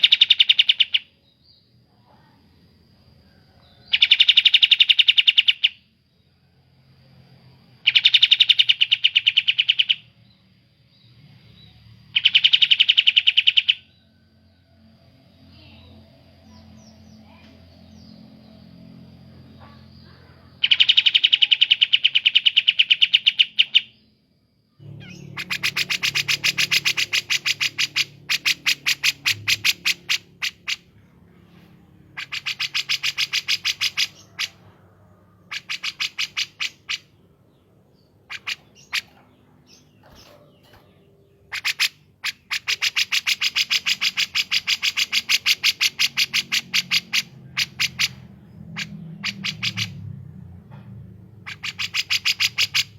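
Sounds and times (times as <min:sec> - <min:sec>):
songbirds chattering trill: 0:15.3 - 0:24.1, 0:24.8 - 0:50.1, 0:51.4 - 0:52.9.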